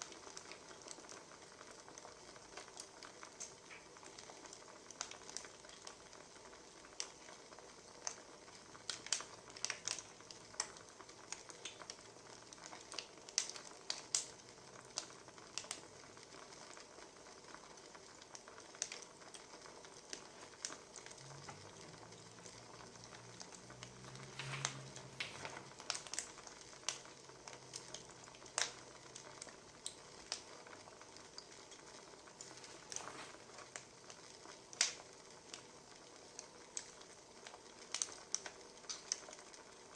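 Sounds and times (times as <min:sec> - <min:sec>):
wood fire crackling: 0:00.0 - 0:39.9
faint low hum: 0:20.3 - 0:30.9.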